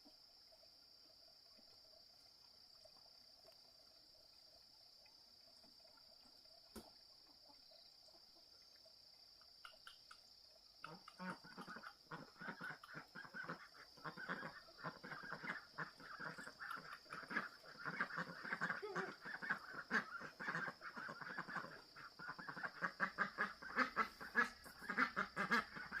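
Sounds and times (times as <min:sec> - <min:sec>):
ducks or geese honking and quacking: 0:10.8 - 0:26.0.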